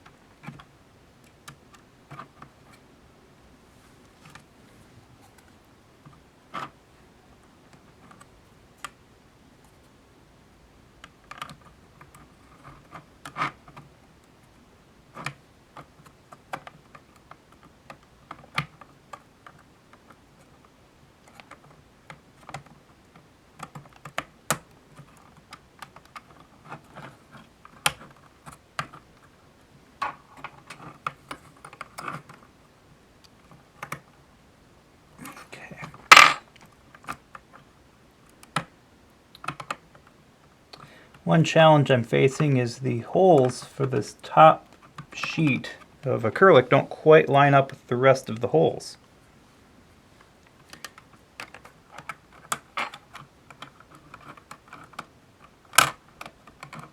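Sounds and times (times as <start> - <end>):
acrylic parts clicking and clacking: 50.4 - 56.9.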